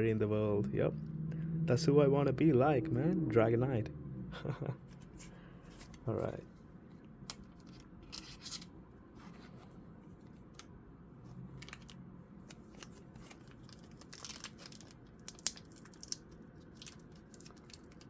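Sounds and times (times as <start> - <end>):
foil wrapper crinkling and tearing: 11.6 - 18.0.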